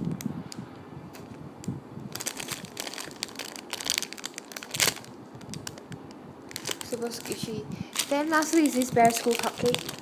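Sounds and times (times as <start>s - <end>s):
foam squishy toy crinkling: 2.1s - 10.0s.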